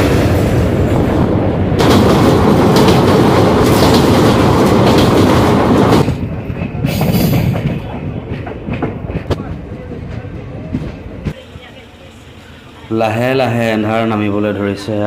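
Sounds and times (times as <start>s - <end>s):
train wheels rumbling and clattering: 0.0s - 11.8s.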